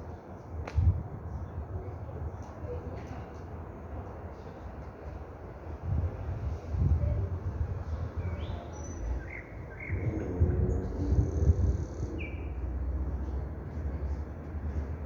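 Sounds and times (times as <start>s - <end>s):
nightingale singing: 8.2s - 12.6s
loud low rumble: 9.0s - 14.3s.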